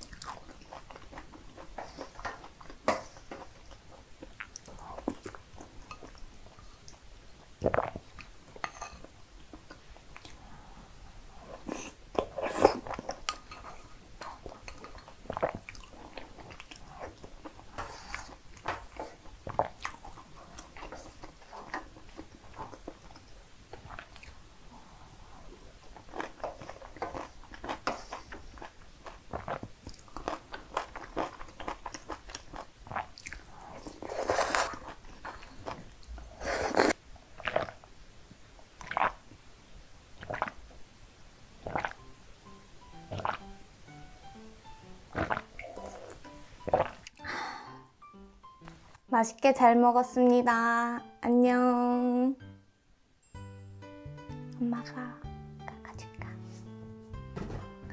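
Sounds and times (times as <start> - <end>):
chewing and wet mouth smacks: 26.0 - 33.5
drink being swallowed: 43.1 - 43.4, 45.2 - 47.2.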